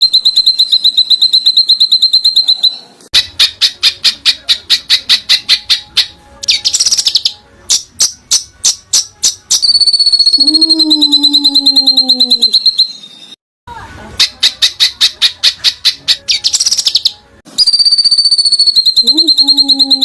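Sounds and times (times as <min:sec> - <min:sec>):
songbird singing: 0:00.0 - 0:13.4, 0:14.2 - 0:20.0.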